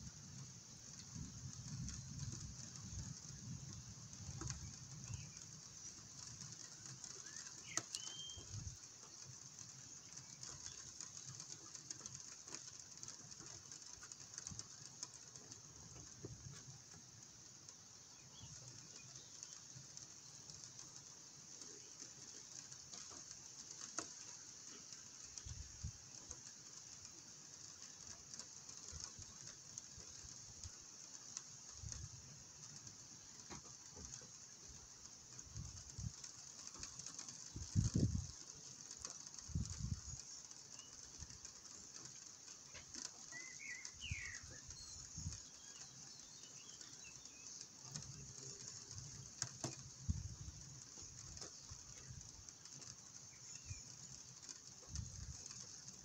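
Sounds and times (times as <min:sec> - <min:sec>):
light rain hissing: 0:00.0 - 0:56.0
faint bird chirps: 0:04.4 - 0:11.8, 0:40.0 - 0:49.4, 0:50.4 - 0:55.6.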